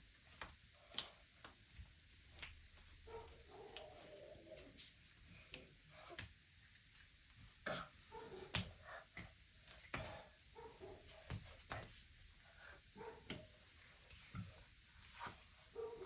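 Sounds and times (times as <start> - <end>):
body thumping on floor: 11.1 - 12.0.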